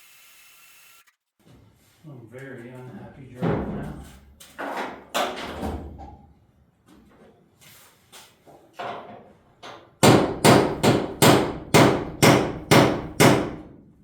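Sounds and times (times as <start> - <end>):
hammer striking steel punch: 10.0 - 13.6.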